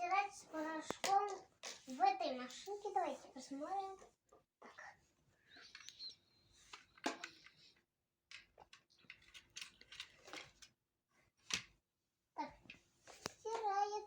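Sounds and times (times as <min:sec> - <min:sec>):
plastic toy clicks and rattles: 0:08.3 - 0:10.7.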